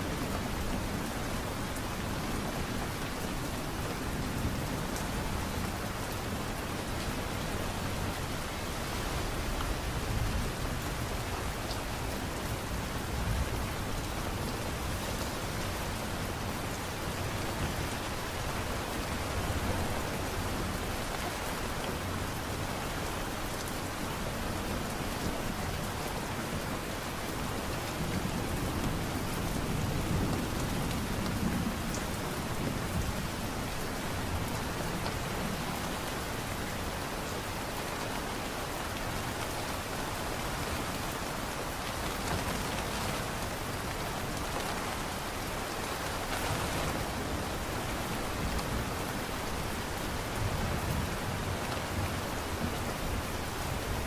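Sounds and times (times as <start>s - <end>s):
light rain pattering: 0.0s - 54.0s.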